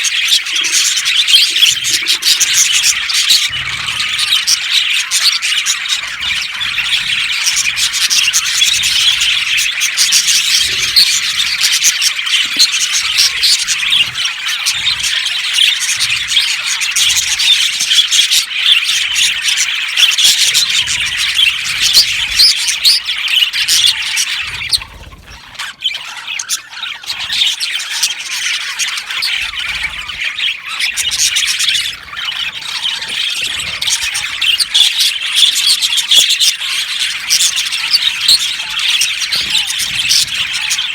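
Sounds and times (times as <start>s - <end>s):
budgerigars chattering and squawking: 0.0s - 40.9s.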